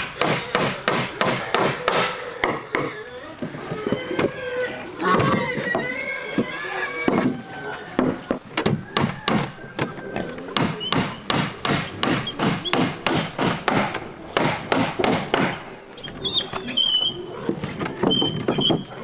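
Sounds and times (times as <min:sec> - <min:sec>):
wood being struck: 0:00.1 - 0:02.9, 0:10.6 - 0:15.7.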